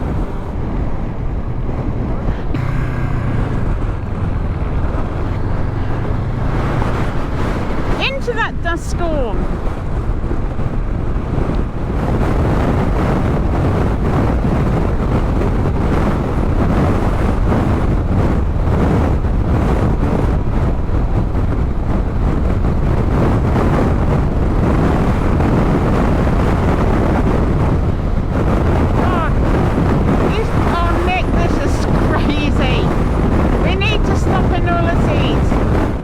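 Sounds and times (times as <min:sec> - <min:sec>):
strong wind buffeting microphone: 0:00.0 - 0:36.0.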